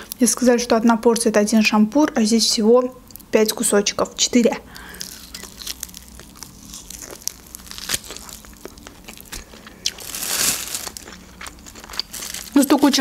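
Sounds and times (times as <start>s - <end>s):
biting and chewing meat: 4.7s - 13.0s.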